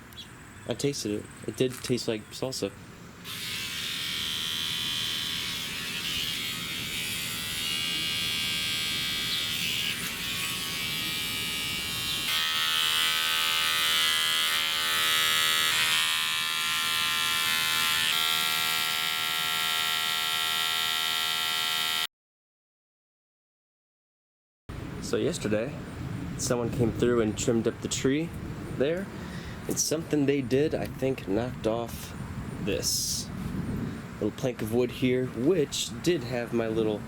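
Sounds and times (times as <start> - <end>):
small motor buzzing: 3.2 - 22.1.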